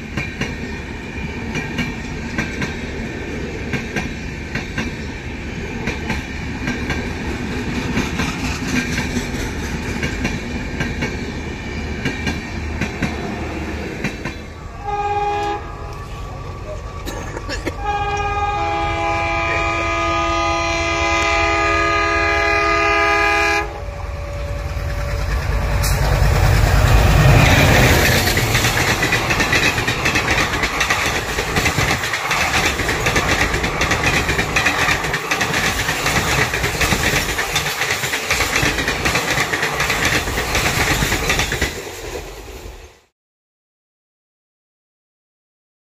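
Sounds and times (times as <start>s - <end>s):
passenger train passing at speed: 0.0s - 43.1s
train horn chord: 14.6s - 16.4s, 17.7s - 27.7s.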